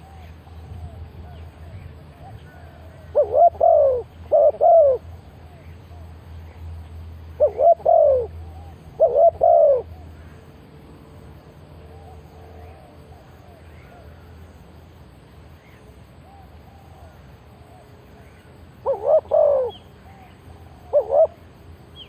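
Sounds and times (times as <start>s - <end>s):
faint dove calls: 0.0s - 6.1s, 7.4s - 10.5s, 15.6s - 21.4s
dove cooing: 0.0s - 6.2s, 7.3s - 10.4s, 16.2s - 21.5s
low steady hum: 0.0s - 22.0s.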